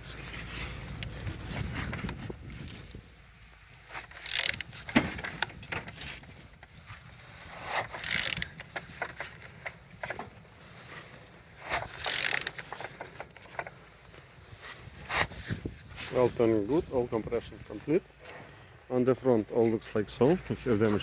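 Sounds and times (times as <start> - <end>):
engine turning over by hand: 0.0 - 17.2
ratchet wrench clicking: 3.9 - 6.2, 7.6 - 9.8, 11.6 - 13.6.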